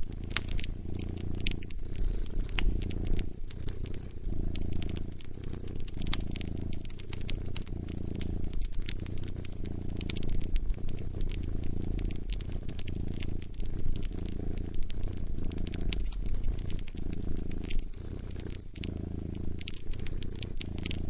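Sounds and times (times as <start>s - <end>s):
cat purring: 0.0s - 21.0s
wood fire crackling and popping: 0.0s - 21.0s.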